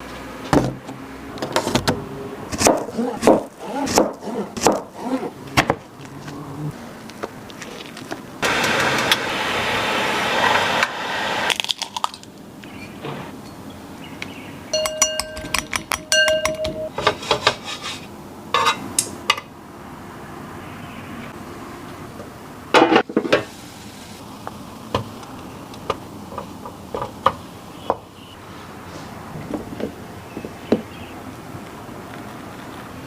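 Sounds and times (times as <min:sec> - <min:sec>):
utensil clinking against bowl: 0:14.8 - 0:17.0
steady hiss: 0:23.3 - 0:25.7.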